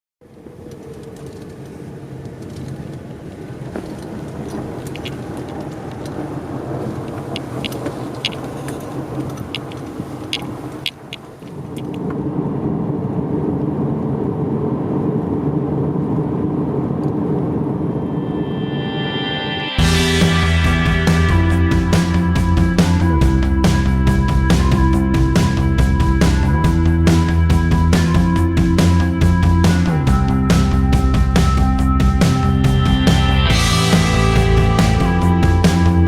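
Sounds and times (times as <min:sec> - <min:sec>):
car engine and tyre noise: 0:00.2 - 0:36.0
gravel ticking clicks: 0:00.3 - 0:12.2.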